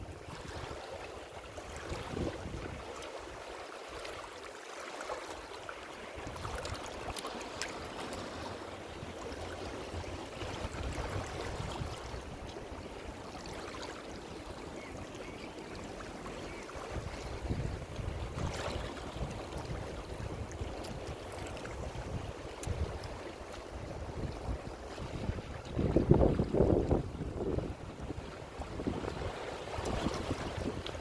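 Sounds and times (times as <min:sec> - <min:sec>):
ocean surf washing: 0:15.7 - 0:31.0
deep rumble of surf: 0:16.0 - 0:31.0.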